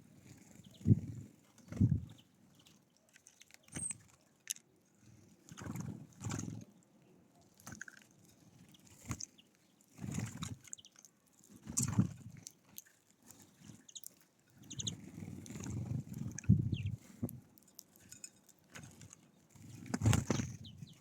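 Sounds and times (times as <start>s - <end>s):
faint high bird chirps: 3.6s - 4.0s, 13.8s - 15.0s, 16.4s - 17.0s, 20.3s - 21.0s
dull knocks and scrabbling: 13.6s - 21.0s.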